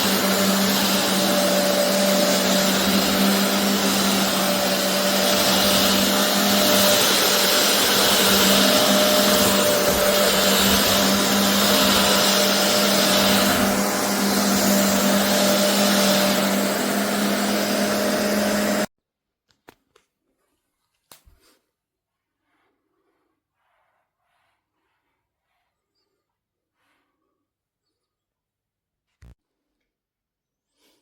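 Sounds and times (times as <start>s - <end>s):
carpet cleaner suction motor: 0.0s - 18.9s.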